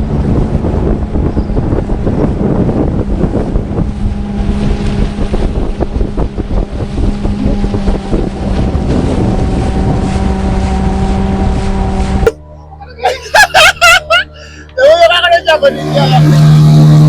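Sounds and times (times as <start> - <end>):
wind buffeting microphone: 0.0 - 12.4
motorboat engine droning: 0.0 - 17.0.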